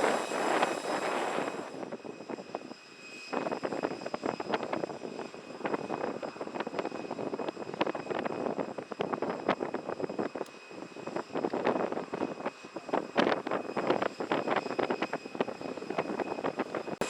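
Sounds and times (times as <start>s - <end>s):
jet engines rushing: 0.0s - 17.0s
rough crackling jet noise: 0.0s - 17.0s.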